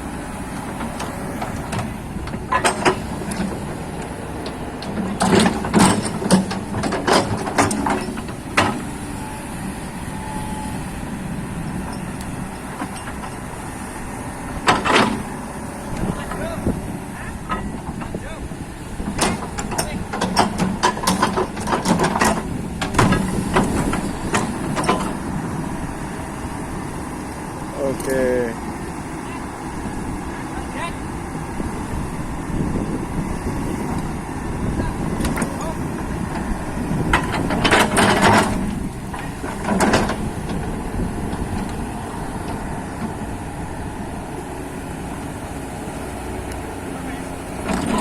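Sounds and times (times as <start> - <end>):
diesel machinery rumbling: 0.0 - 48.0
engine running steadily: 0.0 - 48.0
sharp metallic knocks and clanks: 0.7 - 3.8, 4.4 - 8.9, 14.6 - 15.3, 19.0 - 25.2, 35.2 - 40.7.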